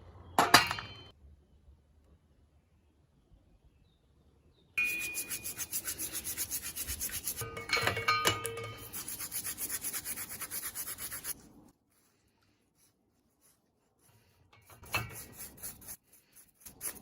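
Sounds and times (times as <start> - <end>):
rubbing a rusty wrench by hand: 4.8 - 17.0.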